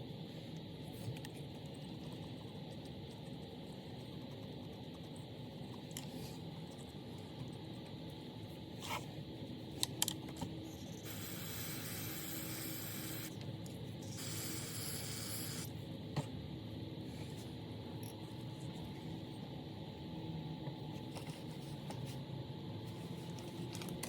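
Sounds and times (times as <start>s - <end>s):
pressurised spray hissing: 11.0s - 13.3s, 14.1s - 15.7s.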